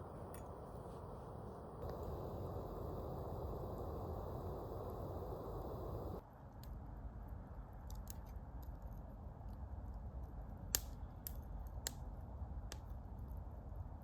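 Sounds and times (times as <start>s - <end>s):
campfire crackling: 0.0s - 6.2s.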